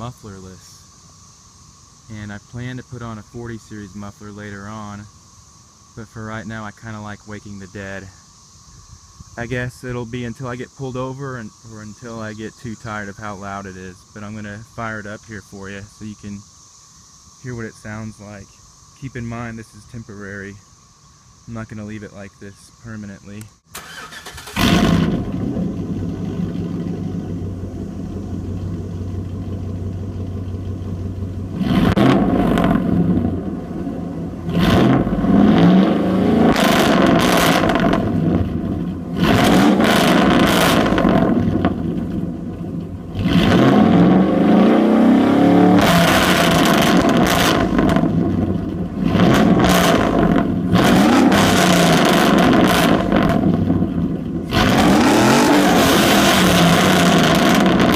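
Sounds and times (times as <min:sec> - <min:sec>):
engine revving in short blips: 0:23.7 - 0:27.6, 0:28.3 - 0:57.9
truck engine starting and idling: 0:23.7 - 0:57.9.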